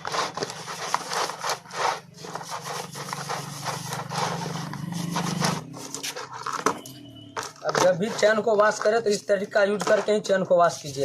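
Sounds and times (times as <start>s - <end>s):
brush scrubbing a chain: 0.0s - 6.3s, 8.0s - 8.7s.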